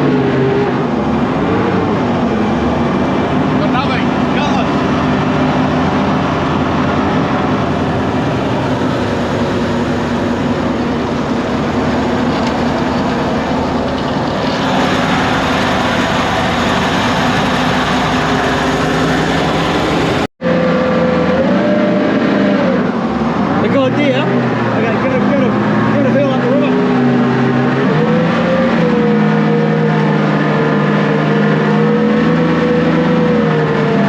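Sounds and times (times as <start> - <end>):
boat engine running: 0.0 - 34.0
rushing water: 2.6 - 20.3.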